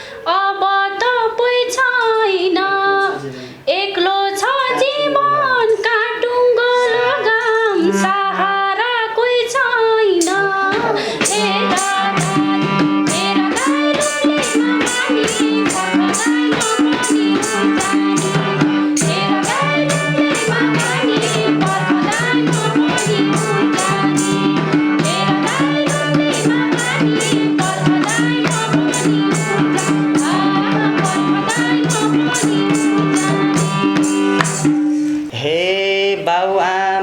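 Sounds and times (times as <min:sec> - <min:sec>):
fast ticking percussion: 0:10.2 - 0:10.6, 0:11.2 - 0:35.0
folk melody bending in pitch: 0:10.2 - 0:35.1.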